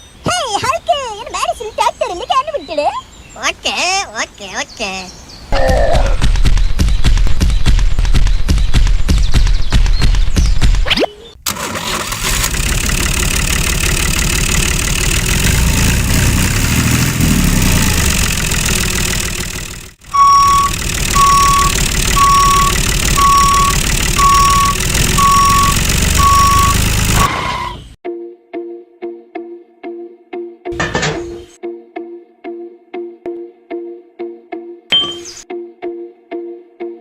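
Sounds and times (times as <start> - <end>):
motor running: 11.4 - 27.3
high reversing alarm beeps: 20.1 - 27.7.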